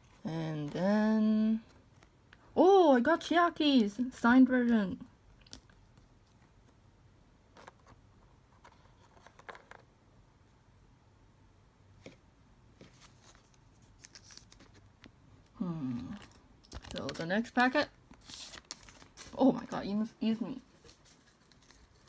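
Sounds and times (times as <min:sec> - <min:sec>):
faint paper rustles and ticks: 0:07.5 - 0:09.8, 0:12.8 - 0:22.0.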